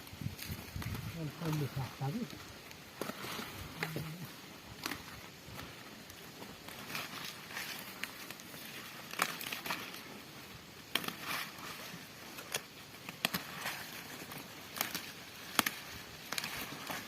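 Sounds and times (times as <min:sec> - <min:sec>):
rustling leaves: 0:00.0 - 0:17.0
leaves snapping off plants: 0:02.2 - 0:05.2, 0:06.6 - 0:10.0, 0:10.8 - 0:17.0.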